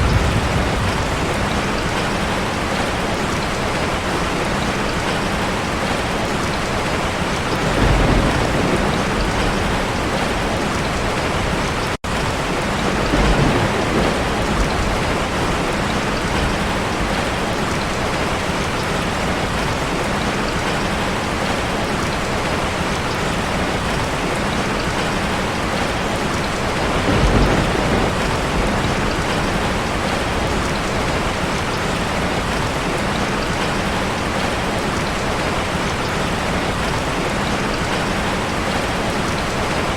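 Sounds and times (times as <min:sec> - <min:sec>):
thunder rumbling: 0:00.0 - 0:03.0, 0:07.4 - 0:18.2, 0:26.5 - 0:32.8
heavy rain on a car: 0:00.0 - 0:39.9.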